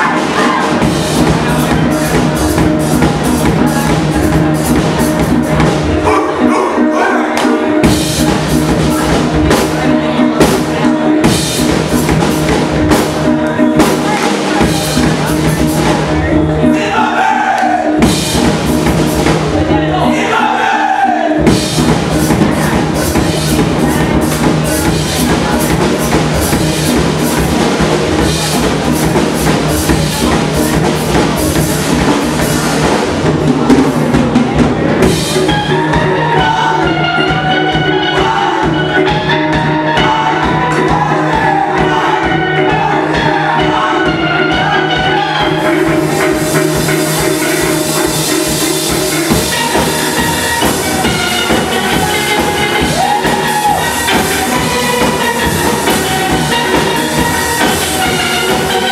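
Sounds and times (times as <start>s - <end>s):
bass groove: 0.0s - 20.3s, 21.3s - 58.9s
drum kit groove: 0.0s - 58.9s
steel pans playing: 35.0s - 58.9s.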